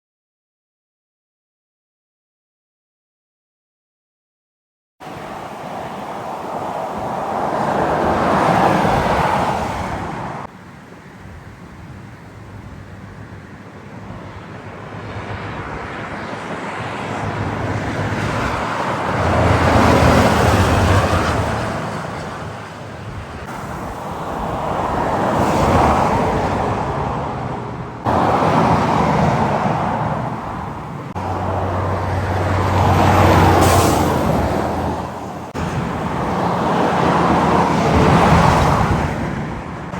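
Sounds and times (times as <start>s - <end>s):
heavy trucks passing: 5.0s - 10.6s, 14.9s - 39.9s.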